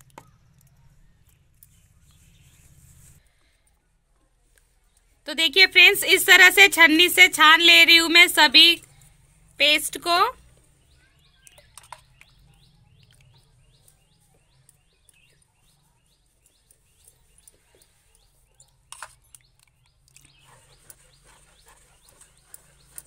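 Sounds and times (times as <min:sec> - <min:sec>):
small bird chirping: 0:00.0 - 0:03.4, 0:10.4 - 0:23.0.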